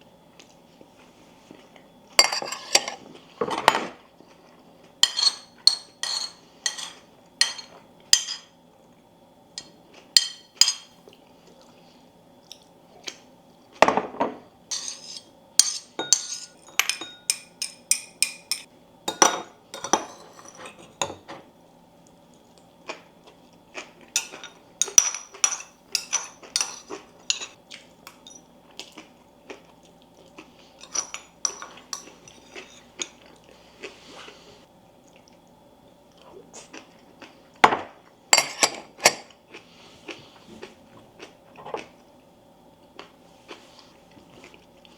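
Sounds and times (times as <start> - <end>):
cutlery clinking on plates: 5.0 - 8.5, 13.9 - 21.4, 30.8 - 33.2.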